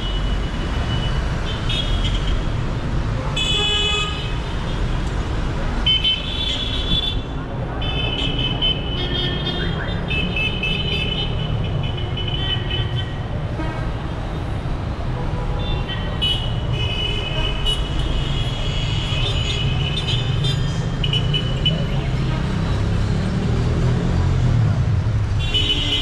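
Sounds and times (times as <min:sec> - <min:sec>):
car and motorbike engines rumbling: 0:04.3 - 0:26.0.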